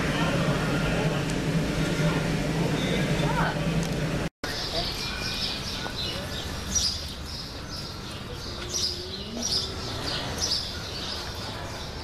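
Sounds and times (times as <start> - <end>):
small birds chirping: 4.5 - 12.0.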